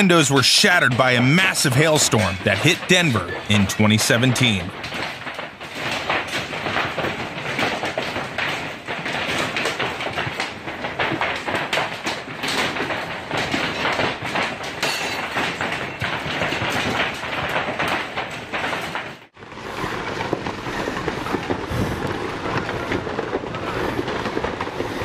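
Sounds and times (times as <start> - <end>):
hailstones clattering: 0.0 - 25.0
steady rushing noise: 19.4 - 25.0.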